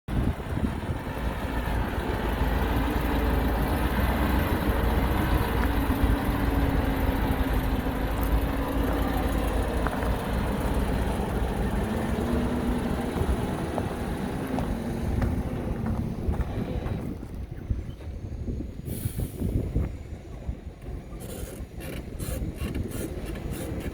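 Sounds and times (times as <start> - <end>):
heavy diesel engine rumbling: 0.1 - 23.9.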